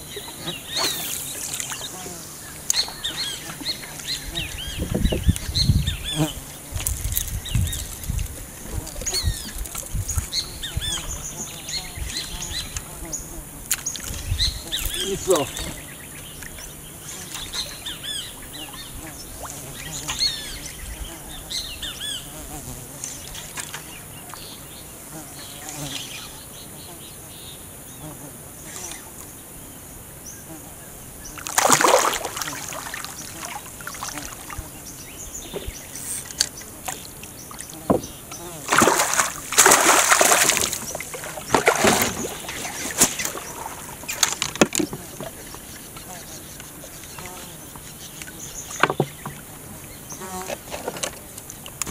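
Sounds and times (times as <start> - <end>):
water splashing and sloshing: 0.0 - 5.6, 6.7 - 12.9, 13.6 - 20.5, 23.1 - 24.5, 31.4 - 49.6, 50.5 - 51.9
birds chirping: 0.0 - 51.9
insects buzzing: 0.0 - 51.9
sharp knocks: 37.9 - 38.1.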